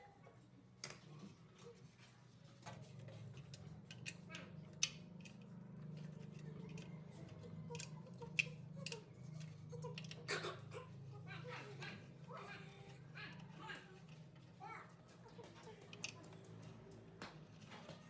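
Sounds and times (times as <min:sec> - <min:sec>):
small metal parts clicking: 0:02.6 - 0:10.3, 0:15.4 - 0:17.1.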